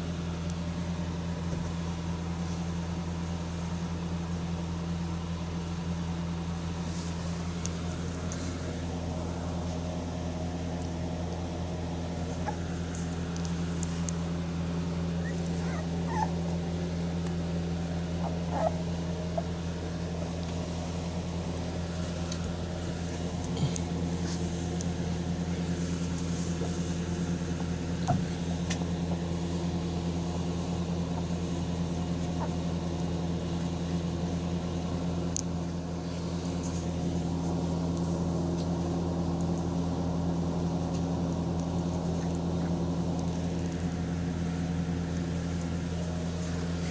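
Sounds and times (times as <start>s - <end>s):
steady mechanical hum: 0.0s - 46.9s
puppies squeaking: 12.2s - 12.7s, 15.1s - 16.6s, 18.2s - 19.6s, 32.2s - 32.6s.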